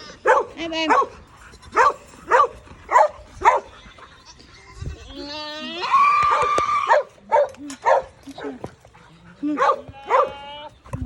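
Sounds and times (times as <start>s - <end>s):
dog barking: 0.2s - 1.1s, 1.8s - 3.7s, 6.3s - 8.6s, 9.6s - 10.4s
drawn-out animal call: 1.3s - 7.0s, 9.1s - 11.0s.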